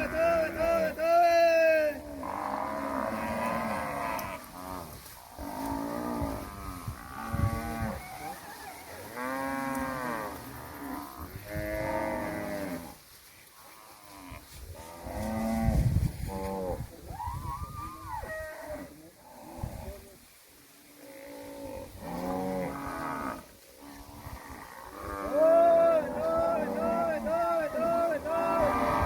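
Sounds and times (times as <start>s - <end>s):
cattle mooing: 2.0s - 8.0s, 24.0s - 29.0s.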